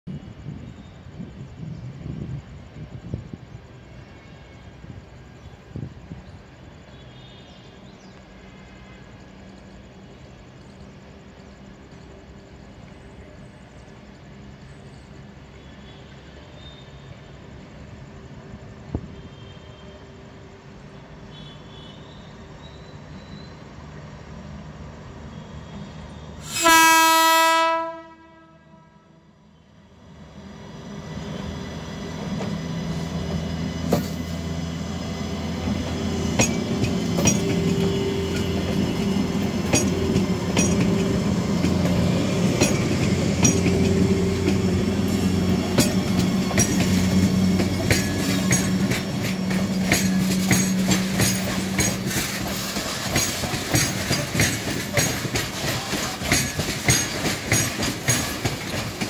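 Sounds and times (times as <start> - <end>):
electric locomotive hum: 0.1 - 59.0
wheel clicks over rail joints: 45.7 - 59.0.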